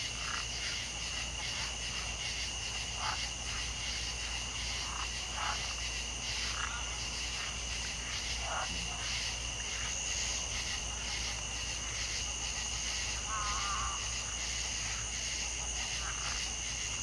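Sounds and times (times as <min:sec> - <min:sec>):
crickets and insects trilling: 0:00.0 - 0:17.0.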